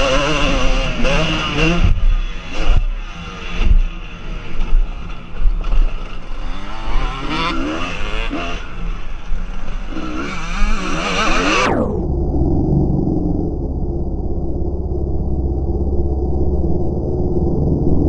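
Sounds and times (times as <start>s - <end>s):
motocross bike engines revving: 0.0s - 11.9s.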